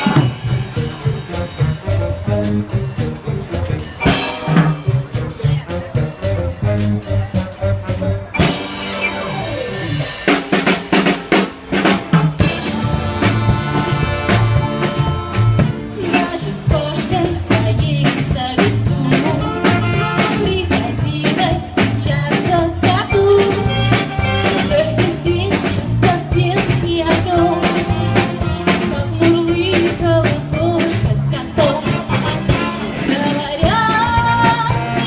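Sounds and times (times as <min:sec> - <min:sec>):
wavering lead melody: 0:00.0 - 0:10.6, 0:12.4 - 0:17.3
bass: 0:00.0 - 0:35.0
drum kit beat: 0:00.0 - 0:35.0.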